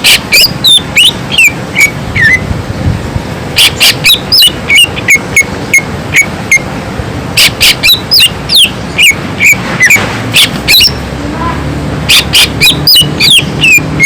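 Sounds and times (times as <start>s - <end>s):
bird whistling sharp notes: 0.0s - 2.4s, 3.6s - 6.6s, 7.4s - 11.0s, 12.1s - 14.0s.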